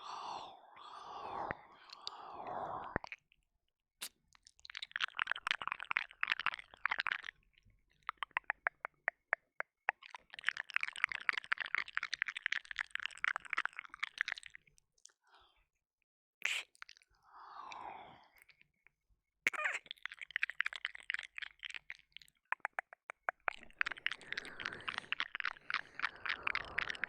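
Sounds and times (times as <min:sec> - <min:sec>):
wet mouth clicks and smacks: 0:01.8 - 0:02.2, 0:03.0 - 0:03.3, 0:04.0 - 0:15.2, 0:16.4 - 0:17.0, 0:19.5 - 0:27.0.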